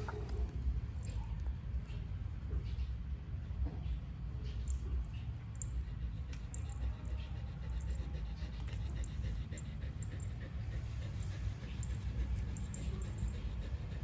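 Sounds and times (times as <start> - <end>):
dog panting: 4.2 - 14.0.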